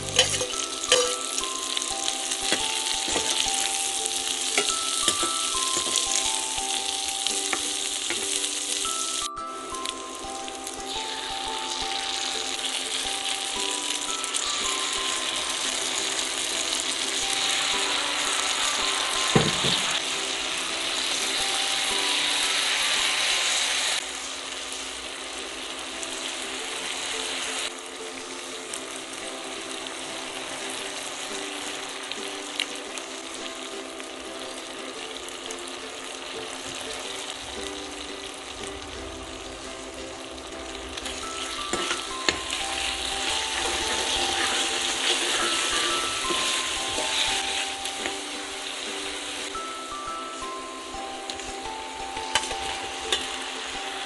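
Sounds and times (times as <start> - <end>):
vegetables sizzling in oil: 0.0 - 54.0
metal spoon clicking on pan: 0.1 - 1.3.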